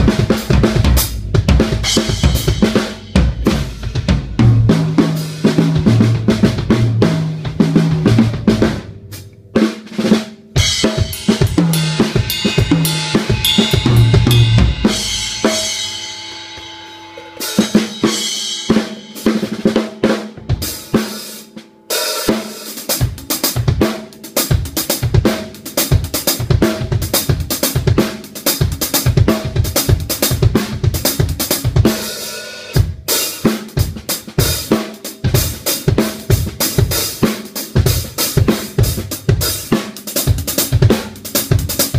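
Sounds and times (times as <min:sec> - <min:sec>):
snare drum: 0:00.0 - 0:08.9, 0:09.6 - 0:15.8, 0:32.8 - 0:41.9
tom drum fills: 0:00.0 - 0:16.7
cymbal crashes: 0:10.6 - 0:19.5.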